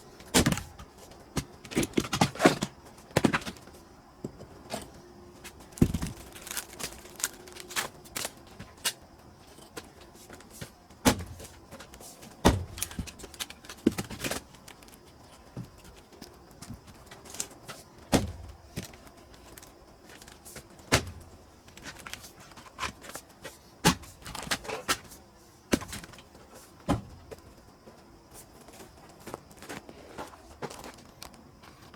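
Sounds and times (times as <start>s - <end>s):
firewood knocking: 5.7s - 7.7s.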